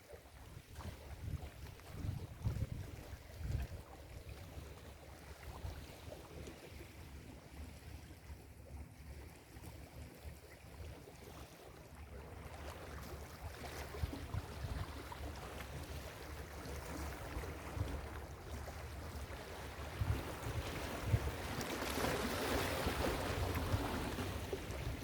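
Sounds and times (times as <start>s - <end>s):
wind rumble on microphone: 0.3s - 8.4s, 13.0s - 25.0s.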